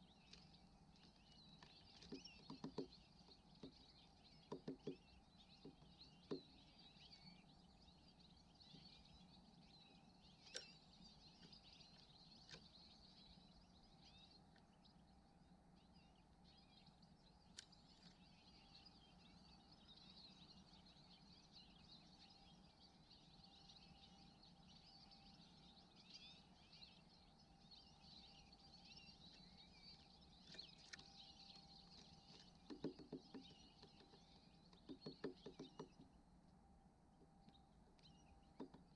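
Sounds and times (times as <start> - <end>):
finches twittering: 0.0 - 36.2
woodpecker pecking at wood: 1.9 - 2.9, 4.5 - 5.0, 32.4 - 36.0.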